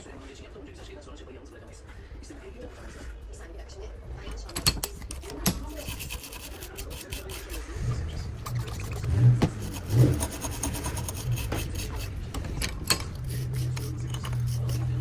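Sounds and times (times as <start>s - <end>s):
rubbing and rasping: 4.3s - 15.0s.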